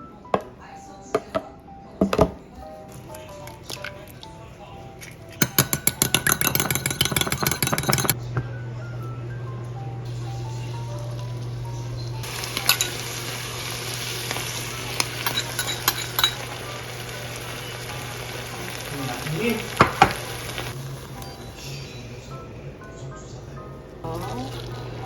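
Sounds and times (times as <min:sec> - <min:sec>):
food sizzling in a frying pan: 0:10.1 - 0:22.0.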